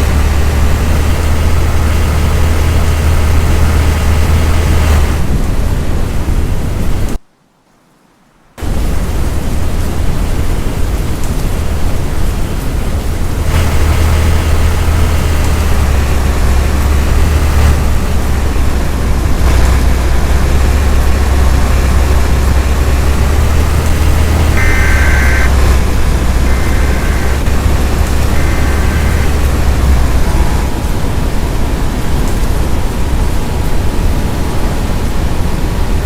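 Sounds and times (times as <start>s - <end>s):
loud steady rumbling: 0.0s - 7.2s, 8.6s - 36.0s
short high beeps: 24.6s - 25.5s.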